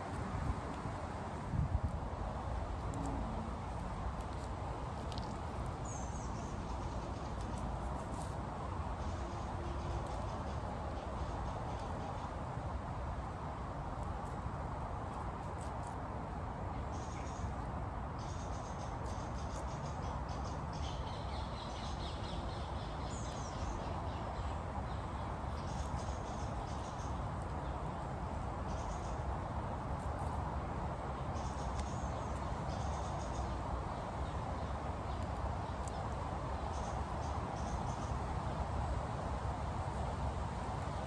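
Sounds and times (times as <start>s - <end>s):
low outdoor rumble: 0.0s - 19.3s
small birds chirping: 2.9s - 12.4s, 16.8s - 30.5s, 31.1s - 38.6s.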